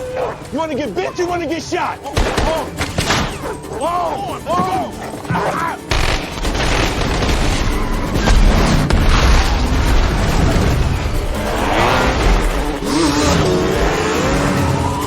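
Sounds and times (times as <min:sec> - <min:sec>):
sharp cracks: 0:05.9 - 0:10.6.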